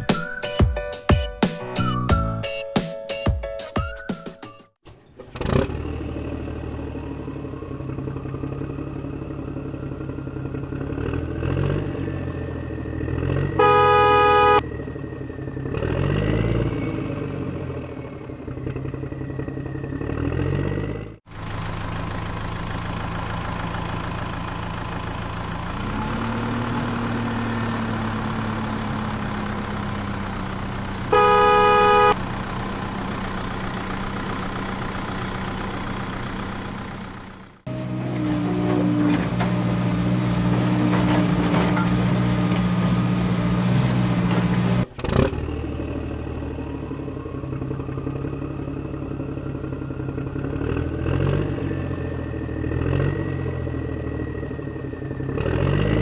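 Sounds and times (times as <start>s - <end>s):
vehicle engine running: 4.8s - 56.0s
horn blasts: 13.5s - 14.6s, 31.1s - 32.2s.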